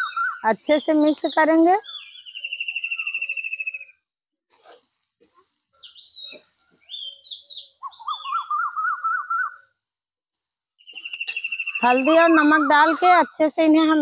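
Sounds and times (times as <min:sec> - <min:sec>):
bird warbling trill: 0:00.0 - 0:03.9, 0:05.8 - 0:09.7, 0:10.8 - 0:13.5.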